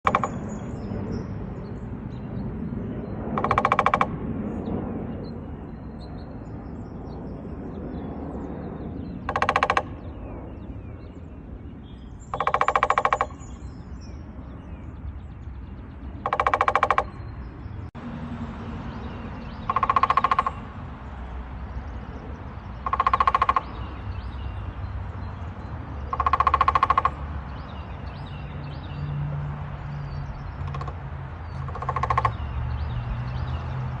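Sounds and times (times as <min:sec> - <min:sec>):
woodpecker drumming on hollow trunk: 0:00.0 - 0:00.6, 0:03.4 - 0:04.2, 0:09.2 - 0:10.1, 0:12.3 - 0:13.6, 0:15.8 - 0:17.4, 0:19.4 - 0:20.8, 0:22.3 - 0:24.6, 0:25.9 - 0:28.2, 0:30.5 - 0:33.2.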